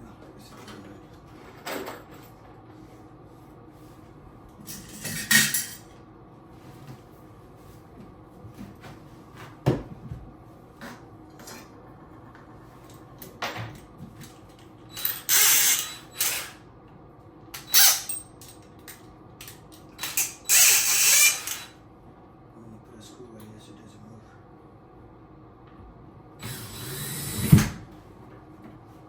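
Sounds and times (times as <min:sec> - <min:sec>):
power tool bursts: 0:15.0 - 0:16.5, 0:26.4 - 0:27.7.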